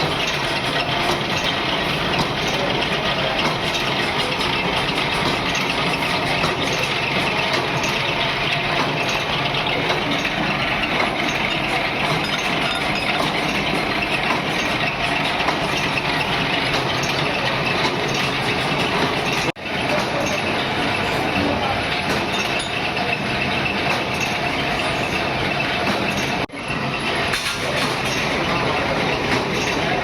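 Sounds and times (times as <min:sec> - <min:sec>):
workshop machinery running: 0:00.0 - 0:30.0.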